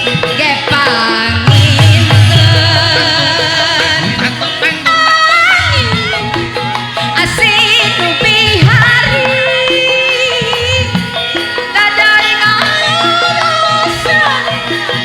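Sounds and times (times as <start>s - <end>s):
drum pulses: 0.0s - 11.3s
gamelan ensemble playing: 0.0s - 15.0s.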